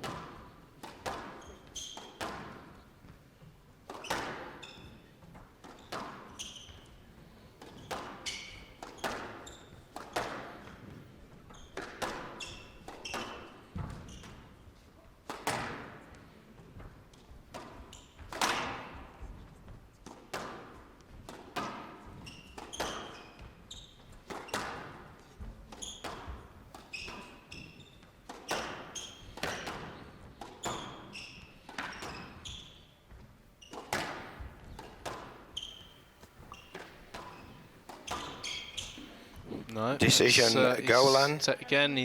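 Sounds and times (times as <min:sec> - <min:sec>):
squash ball smacking rackets and walls: 0:00.0 - 0:39.2
shoes squeaking on court floor: 0:01.1 - 0:10.0, 0:10.7 - 0:14.6, 0:22.1 - 0:24.8, 0:25.7 - 0:41.5.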